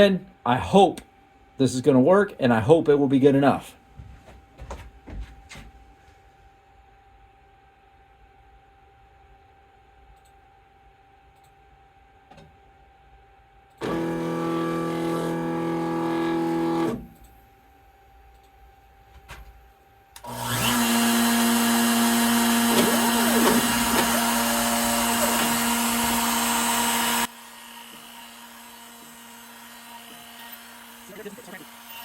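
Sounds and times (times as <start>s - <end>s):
quiet steady machine hum: 0.0s - 20.3s
router spindle cutting wood: 13.8s - 17.1s, 20.2s - 32.0s
motor whine: 13.8s - 17.2s, 20.2s - 32.0s.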